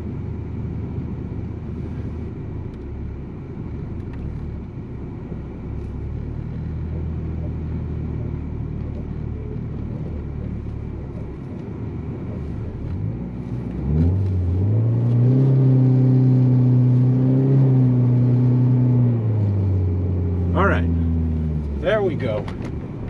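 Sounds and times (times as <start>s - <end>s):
car engine revving: 5.6s - 23.0s.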